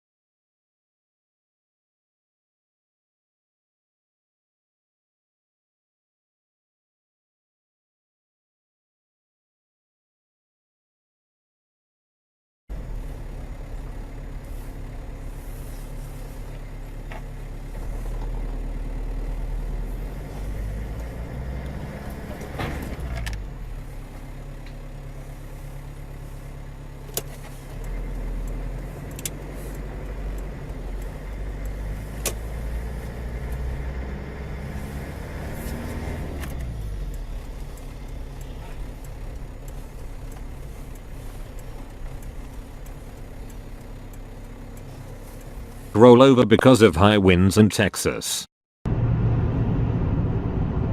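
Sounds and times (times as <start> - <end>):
vehicles passing by: 12.7 - 47.8
car engine and road noise: 12.7 - 48.2, 48.9 - 50.9
sharp clicks: 27.0 - 33.7, 35.6 - 45.8.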